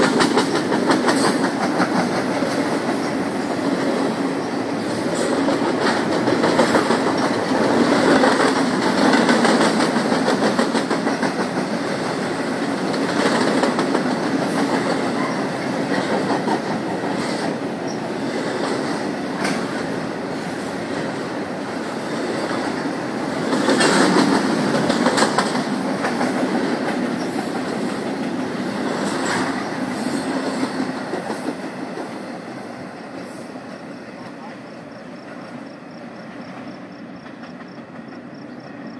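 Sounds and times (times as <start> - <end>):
wheels clicking over rail joints: 0.0 - 20.0, 21.0 - 32.2
train cars rumbling past: 0.0 - 38.9.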